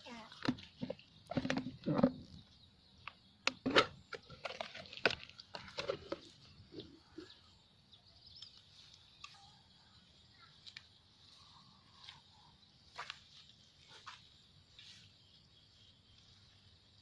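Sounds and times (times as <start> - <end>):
bird chirping and clicking: 0.4 - 7.4, 8.0 - 9.6, 10.4 - 11.0.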